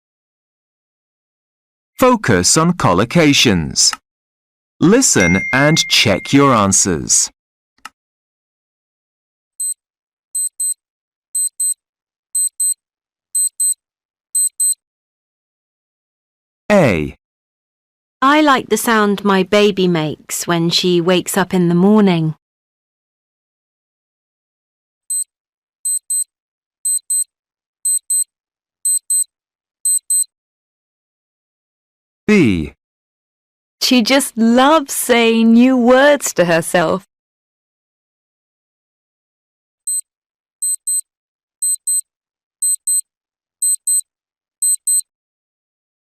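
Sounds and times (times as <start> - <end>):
high-pitched electronic beeping: 5.2 - 6.5, 25.9 - 26.2, 26.9 - 27.2, 27.9 - 28.2, 28.9 - 29.2, 29.9 - 30.3, 40.6 - 41.0, 41.6 - 42.0, 42.6 - 43.0, 43.6 - 44.0, 44.6 - 45.0.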